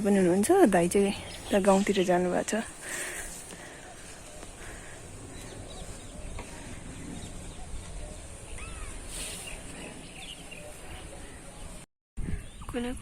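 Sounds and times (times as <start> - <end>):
brief hiss: 9.1 - 9.6.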